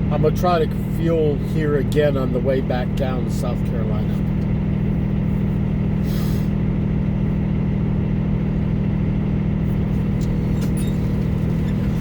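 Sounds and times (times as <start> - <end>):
truck diesel engine idling: 0.0 - 12.0
short air hiss: 6.0 - 6.5.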